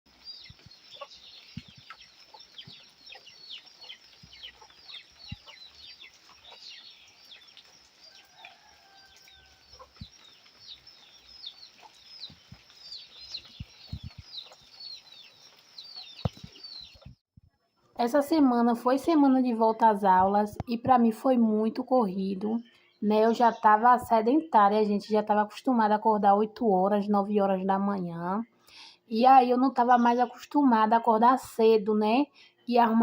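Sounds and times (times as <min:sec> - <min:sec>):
birds chirping: 0:00.1 - 0:17.2, 0:18.0 - 0:25.4.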